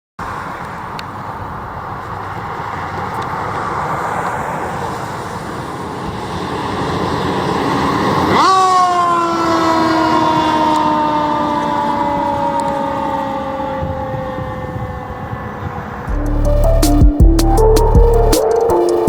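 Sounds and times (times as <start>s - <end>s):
fire engine driving past: 0.2s - 19.0s
loud siren blare: 7.2s - 19.0s.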